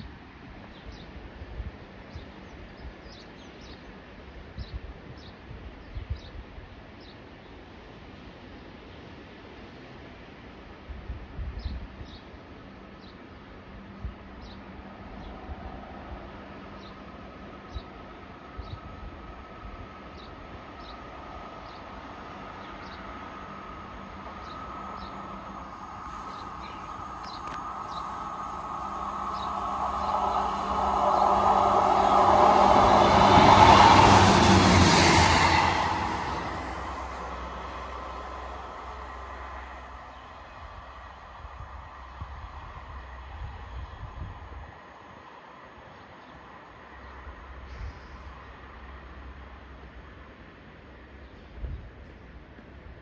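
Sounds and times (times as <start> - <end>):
train rumble and rail hum: 0.0 - 53.0
wind buffeting microphone: 14.0 - 44.8, 51.4 - 52.0
high bird chirps: 24.3 - 32.2.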